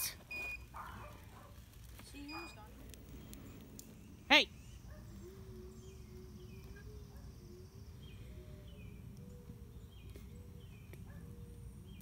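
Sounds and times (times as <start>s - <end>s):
bird chirping: 2.2s - 12.0s.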